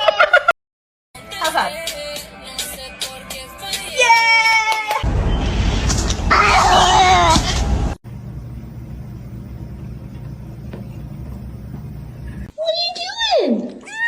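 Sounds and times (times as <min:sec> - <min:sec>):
loud rumbling noise: 0:05.1 - 0:09.9
steady low hum: 0:07.4 - 0:12.5.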